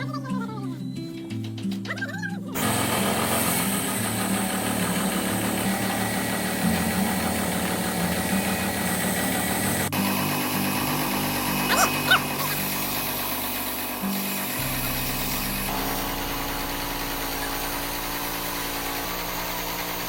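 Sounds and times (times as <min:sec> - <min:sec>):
background music: 0:00.0 - 0:13.2
engine-driven machine running: 0:00.8 - 0:20.0.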